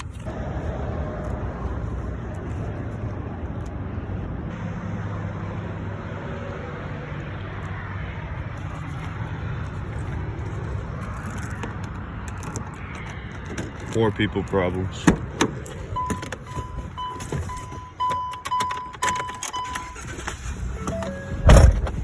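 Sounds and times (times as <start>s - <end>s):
truck engine humming: 0.0s - 22.0s.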